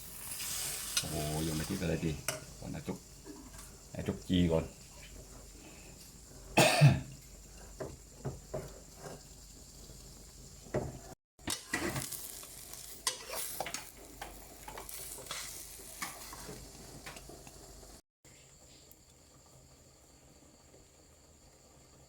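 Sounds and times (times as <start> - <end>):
omelette sizzling in a pan: 0.0 - 22.0
spatula scraping and knocking pan: 7.2 - 12.1, 13.0 - 17.3.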